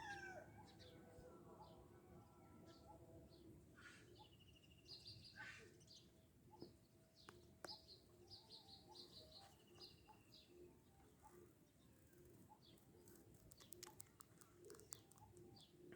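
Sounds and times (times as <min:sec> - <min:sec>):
faint bird chirps: 0:00.0 - 0:15.9
sharp clicks: 0:13.0 - 0:15.7.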